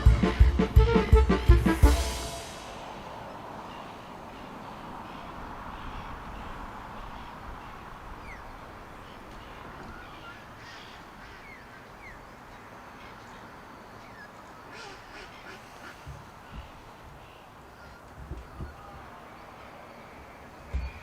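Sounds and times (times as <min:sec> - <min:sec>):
short high chirps: 0:01.7 - 0:03.3
ducks quacking: 0:03.6 - 0:12.2, 0:14.1 - 0:18.1.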